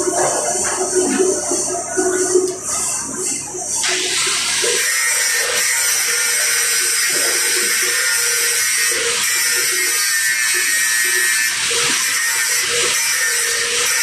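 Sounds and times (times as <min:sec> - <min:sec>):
arc welding crackling hiss: 0:03.8 - 0:14.0.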